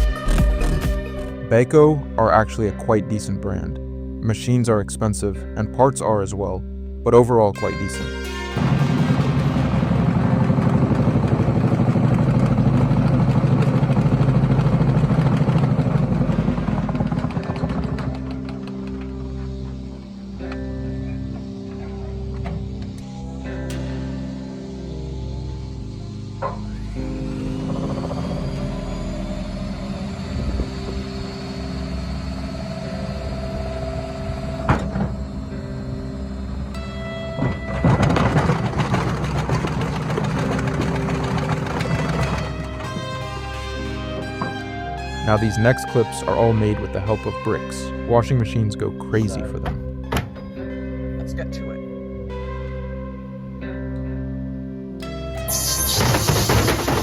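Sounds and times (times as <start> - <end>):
washing machine spinning: 8.8 - 23.0, 37.4 - 44.1.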